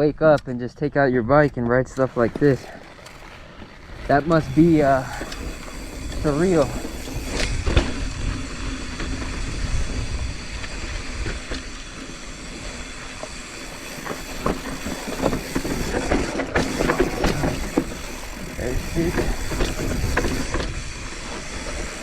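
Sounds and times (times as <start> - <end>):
bike rattling and knocking: 1.4 - 22.0
bike tyres rumbling on dirt: 1.8 - 22.0
wind on microphone: 3.9 - 11.8, 16.7 - 22.0.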